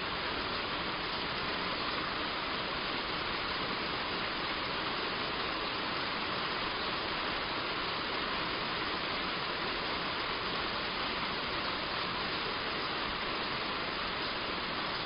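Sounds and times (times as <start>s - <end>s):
heavy rain on a roof: 0.0s - 15.0s.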